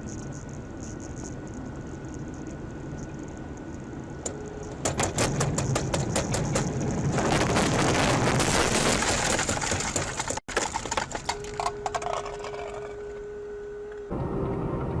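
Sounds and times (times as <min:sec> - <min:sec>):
road hum in car: 0:00.0 - 0:10.4, 0:12.0 - 0:15.0
clatter of rapid clicks: 0:04.7 - 0:12.7.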